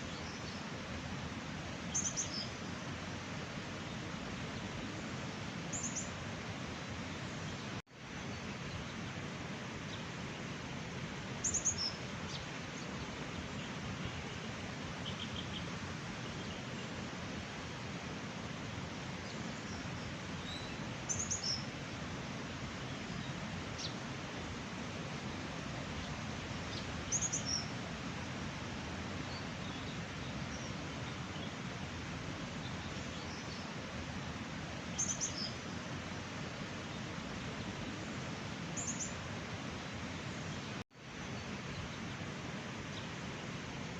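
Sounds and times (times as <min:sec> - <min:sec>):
steady rushing outdoor noise: 0:00.0 - 0:43.9
small birds chirping: 0:11.4 - 0:14.4, 0:15.0 - 0:16.9, 0:19.2 - 0:21.7, 0:26.0 - 0:27.8, 0:34.9 - 0:35.7.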